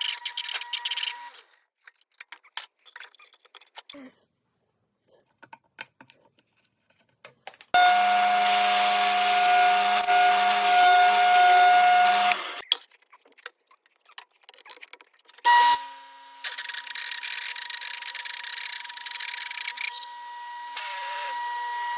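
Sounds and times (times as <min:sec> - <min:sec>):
woodworking power tool whining: 0:07.8 - 0:12.6, 0:15.4 - 0:21.9.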